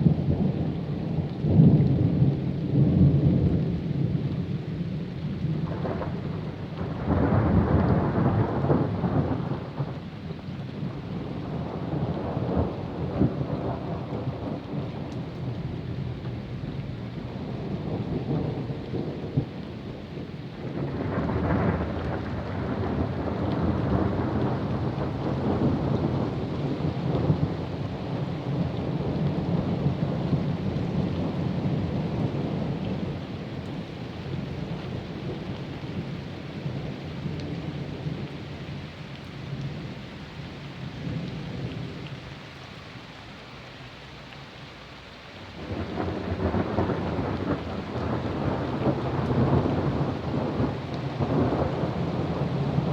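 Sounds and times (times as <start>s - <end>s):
steady rain: 0.0s - 52.9s
rolling thunder: 5.6s - 10.0s, 17.2s - 33.6s, 45.6s - 52.9s.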